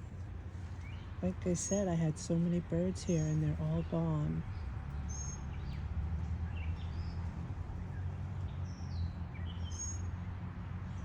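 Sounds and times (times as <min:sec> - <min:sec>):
low background hum: 0:00.0 - 0:11.0
bird chirps: 0:03.0 - 0:10.2.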